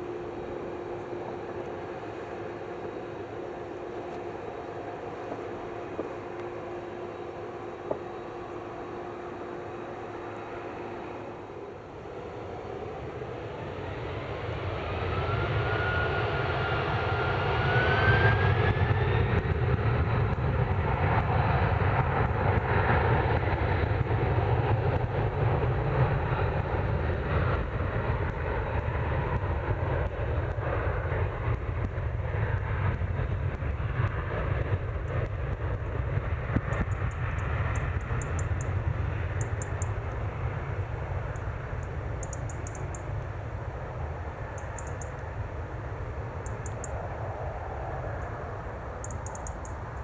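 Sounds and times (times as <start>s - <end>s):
rising engine whistle: 0.0s - 19.4s
jet engines roaring: 0.0s - 50.0s.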